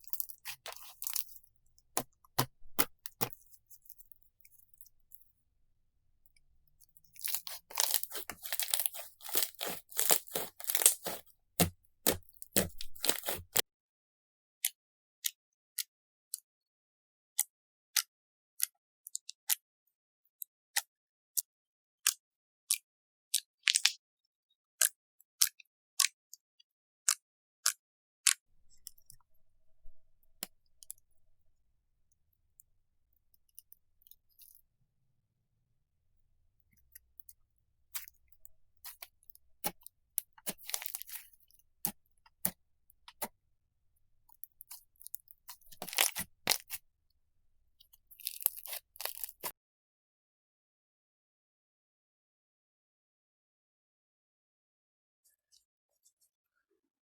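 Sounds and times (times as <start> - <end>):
crunchy slime crackling: 0.0 - 4.9, 7.0 - 13.6, 37.9 - 43.3, 44.3 - 46.8, 48.1 - 49.5
soft squishing: 0.0 - 5.4, 6.3 - 13.6, 36.6 - 43.4, 44.2 - 46.8, 47.8 - 49.5.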